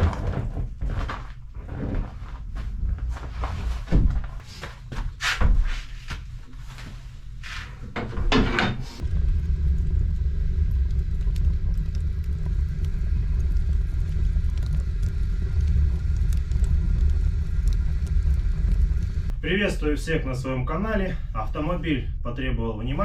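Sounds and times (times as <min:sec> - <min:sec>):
car road and tyre noise: 0:08.0 - 0:19.4.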